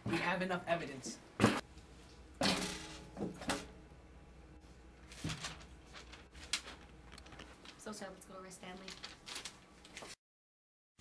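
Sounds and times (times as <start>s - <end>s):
rustling: 5.0s - 10.2s.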